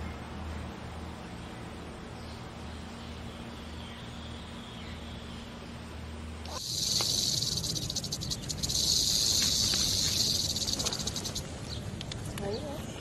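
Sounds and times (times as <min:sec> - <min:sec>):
low steady hum: 0:00.0 - 0:13.0
high-pitched buzzing hiss: 0:06.4 - 0:11.6.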